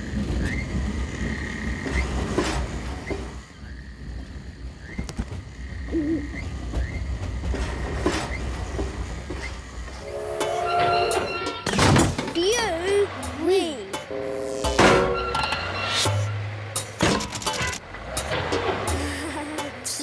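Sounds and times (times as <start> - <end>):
sharp clanks: 6.7 - 20.0.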